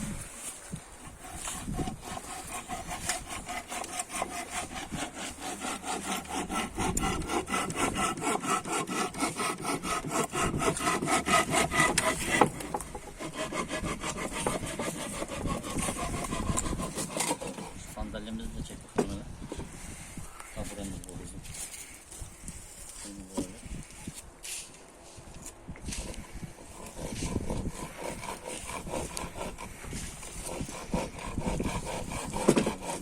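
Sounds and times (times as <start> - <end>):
saw cutting wood: 1.0 - 18.2, 25.9 - 33.0.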